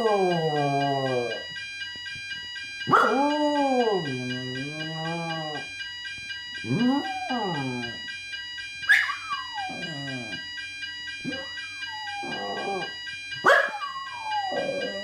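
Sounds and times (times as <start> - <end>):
fire alarm pulsing tone: 0.0 - 15.0
dog howling: 2.9 - 5.6, 6.7 - 8.0, 8.9 - 10.4, 11.3 - 12.9, 13.5 - 15.0.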